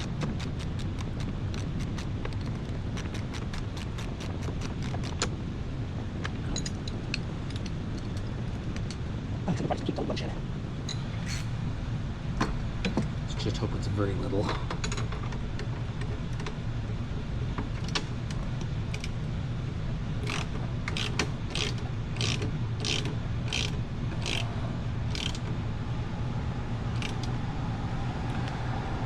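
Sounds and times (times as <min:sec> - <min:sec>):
ratchet wrench clicking: 0:00.0 - 0:05.3, 0:20.2 - 0:24.5, 0:25.1 - 0:25.5, 0:27.0 - 0:27.3
steady low hum: 0:00.0 - 0:29.0.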